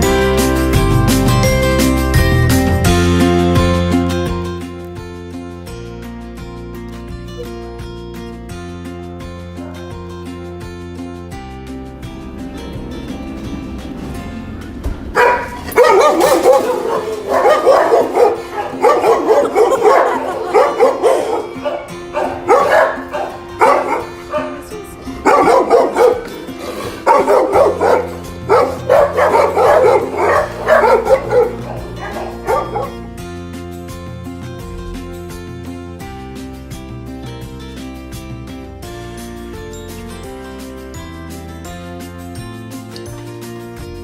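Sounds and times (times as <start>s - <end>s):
acoustic guitar music: 0.0s - 44.0s
dog barking: 15.2s - 33.1s.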